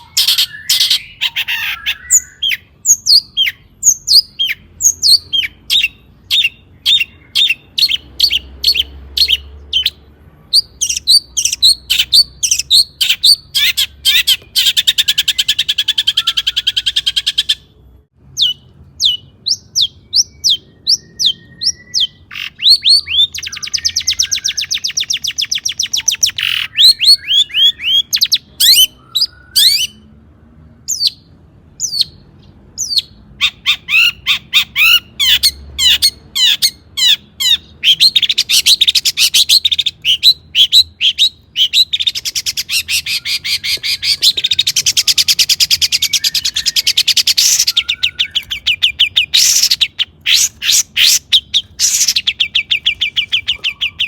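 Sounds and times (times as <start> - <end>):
bird singing: 0.0 - 54.0.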